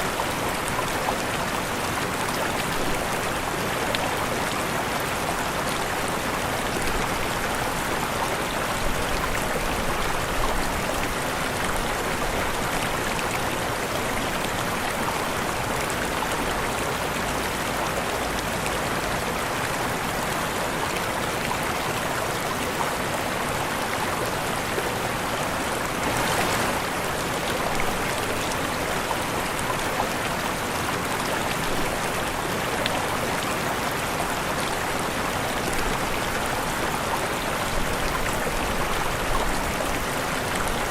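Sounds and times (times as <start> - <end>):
waterfall rushing: 23.3 - 40.9.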